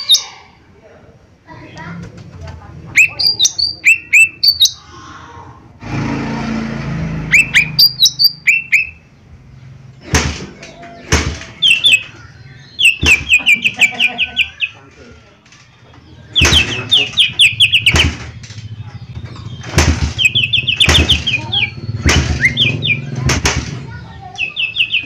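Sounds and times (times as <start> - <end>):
bird singing whistled notes: 2.9 - 4.8, 7.3 - 9.1, 10.8 - 14.8, 16.1 - 23.2, 24.3 - 25.0.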